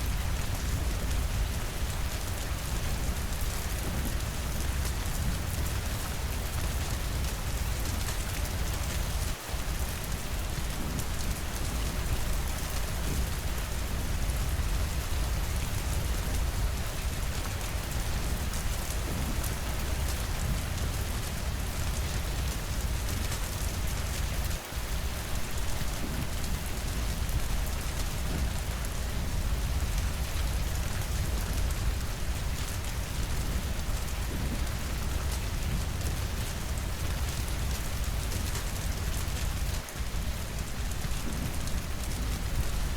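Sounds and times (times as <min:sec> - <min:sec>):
steady rainfall: 0:00.0 - 0:42.9.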